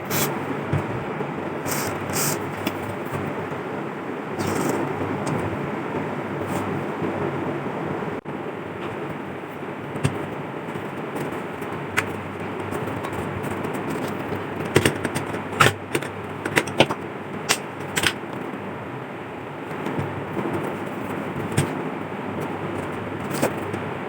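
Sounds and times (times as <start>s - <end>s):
metal clicks and taps: 13.8s - 18.2s.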